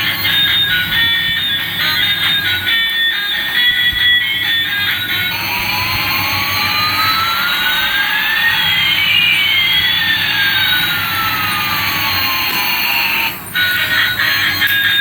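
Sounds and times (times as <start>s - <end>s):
electronic jet engine hiss: 0.0s - 15.0s
rising and falling whines: 0.0s - 15.0s.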